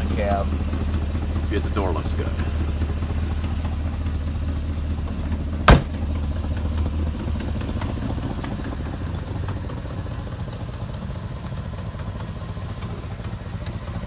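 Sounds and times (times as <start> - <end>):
truck engine idling: 0.0 - 14.0
sharp knock: 5.7 - 6.1.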